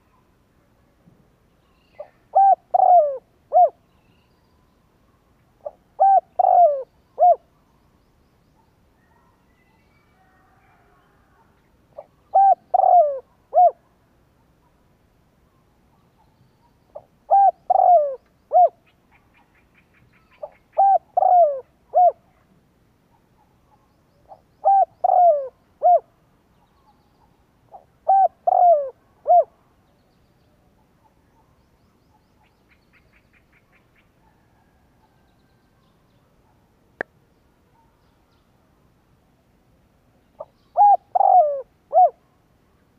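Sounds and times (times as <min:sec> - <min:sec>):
dove cooing: 0:02.0 - 0:03.8, 0:05.6 - 0:07.5, 0:12.0 - 0:13.8, 0:16.9 - 0:19.2, 0:20.3 - 0:22.3, 0:24.3 - 0:26.1, 0:27.7 - 0:29.6, 0:40.4 - 0:42.2.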